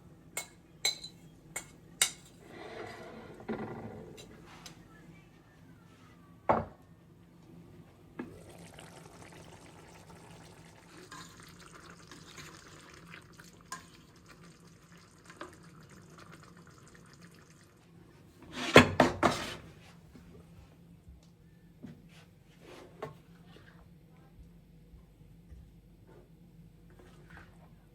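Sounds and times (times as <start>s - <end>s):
dishes clattering: 0.4s - 4.4s
water running from a tap: 8.4s - 17.8s.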